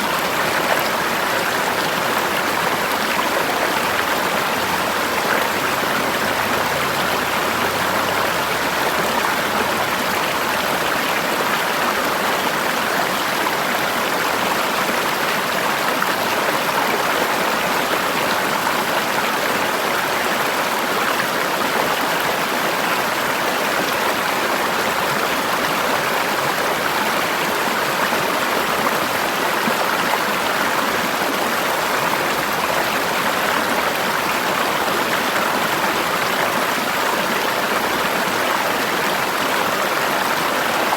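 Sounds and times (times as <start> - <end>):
river flowing over rocks: 0.0 - 40.9.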